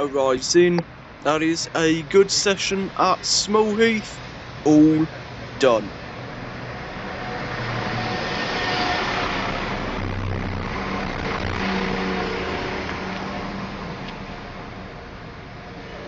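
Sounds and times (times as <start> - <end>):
faint steady tones: 0.0 - 6.3.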